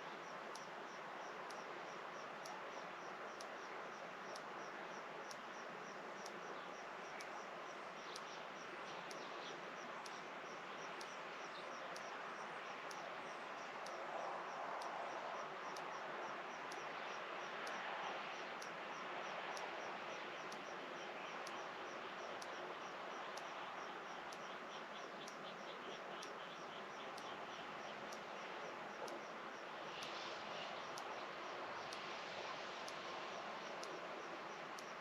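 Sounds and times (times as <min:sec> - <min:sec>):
steady hiss: 0:00.0 - 0:35.0
insect chirping: 0:20.3 - 0:30.2.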